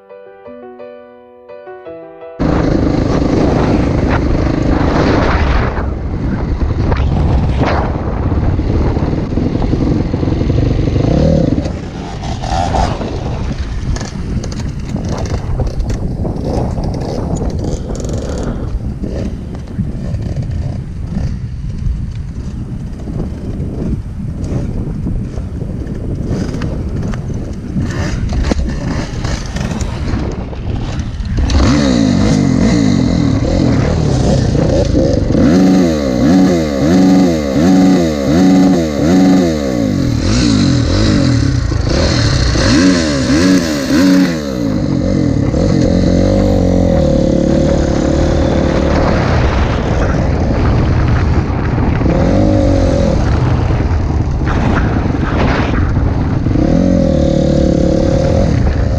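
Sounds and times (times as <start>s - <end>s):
wind noise: 2.4s - 58.9s
motocross bike engine revving: 8.6s - 21.5s, 27.8s - 58.9s.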